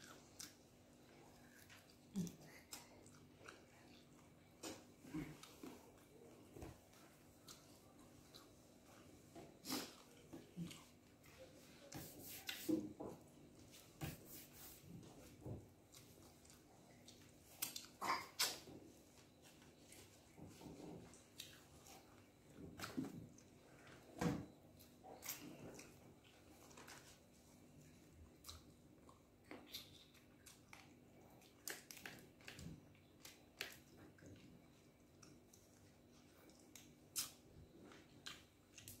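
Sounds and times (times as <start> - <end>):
person chewing meat: 0.0 - 12.6, 15.3 - 24.0, 24.7 - 39.0
person chewing mouth smacks: 28.4 - 39.0.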